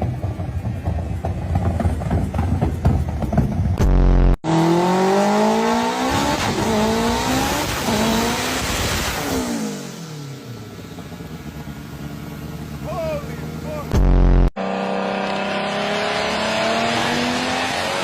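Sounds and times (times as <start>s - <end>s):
car engine at full throttle: 0.0s - 18.0s
loud low drone: 13.4s - 14.5s.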